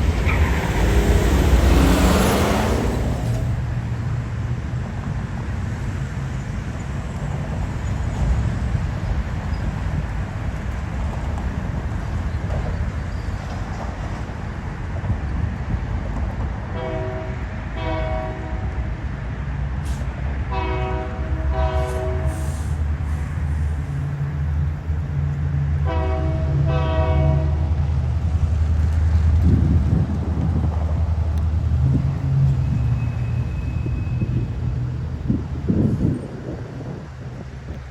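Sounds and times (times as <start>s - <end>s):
diesel locomotive rumble: 0.0s - 37.9s
locomotive air horn blasts: 16.8s - 18.7s, 20.5s - 22.8s, 25.8s - 27.7s.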